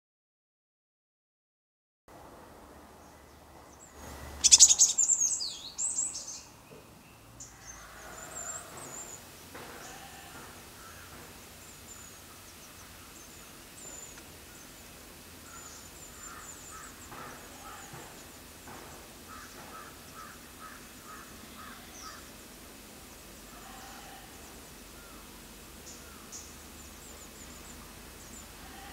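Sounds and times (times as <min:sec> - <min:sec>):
faint high bird chirps: 0:03.8 - 0:06.8
shrill sweeping bird calls: 0:03.9 - 0:06.5.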